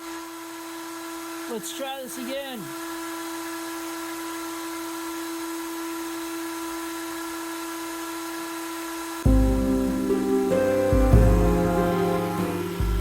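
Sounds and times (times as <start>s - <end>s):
router spindle whine: 0.0s - 10.6s
loud music: 9.3s - 13.0s.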